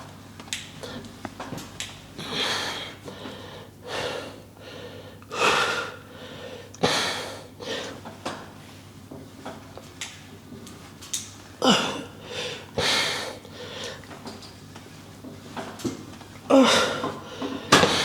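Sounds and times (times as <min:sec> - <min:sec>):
man breathing hard: 0:02.2 - 0:08.0, 0:11.6 - 0:14.0, 0:16.5 - 0:18.0.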